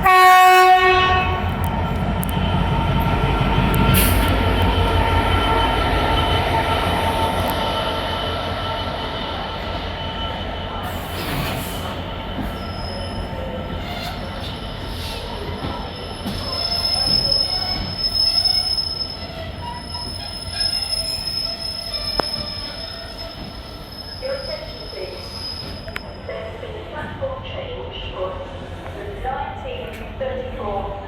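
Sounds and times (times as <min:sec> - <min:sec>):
train rumble: 0:00.0 - 0:31.0
train wheels squealing on rails: 0:03.7 - 0:26.6.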